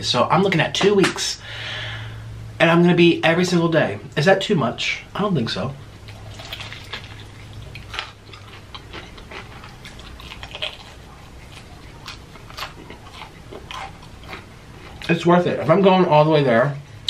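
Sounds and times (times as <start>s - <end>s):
crunching fried chicken: 6.0s - 16.3s.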